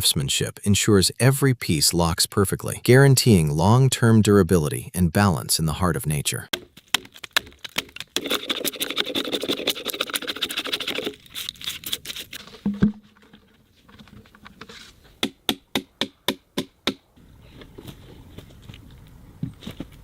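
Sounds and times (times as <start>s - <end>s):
hand tool rasping wood: 6.5s - 12.4s.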